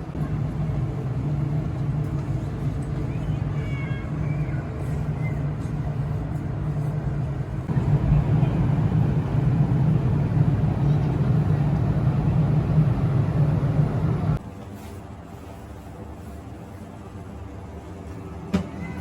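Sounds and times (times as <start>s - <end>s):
vehicle engine drone: 7.2s - 14.4s.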